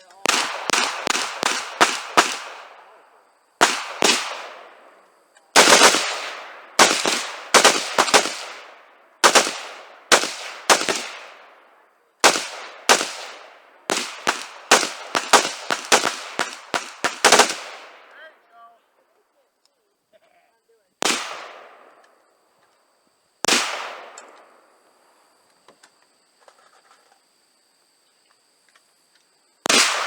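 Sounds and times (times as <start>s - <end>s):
gunshots with short echo: 5.6s - 11.4s, 12.2s - 18.0s.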